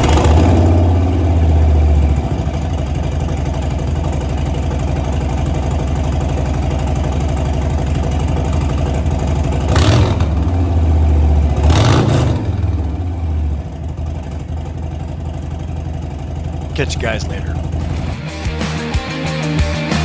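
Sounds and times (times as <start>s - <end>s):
motorcycle engine idling: 0.6s - 9.7s, 12.4s - 16.8s.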